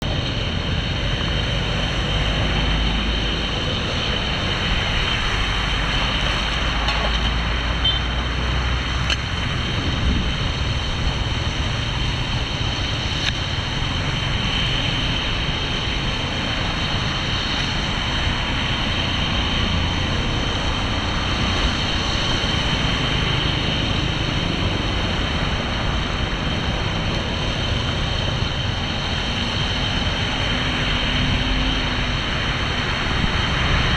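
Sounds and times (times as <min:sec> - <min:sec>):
floodwater rushing: 0:09.5 - 0:33.9.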